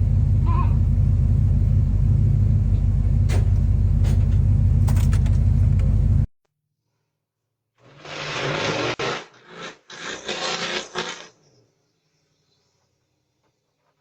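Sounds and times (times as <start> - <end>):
truck engine exhaust rumble: 0.0 - 6.3.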